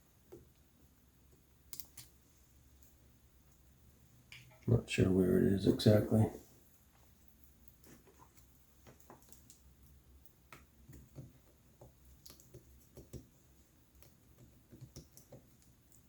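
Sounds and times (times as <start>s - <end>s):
small clicks and taps: 0.2s - 4.7s, 6.9s - 16.0s.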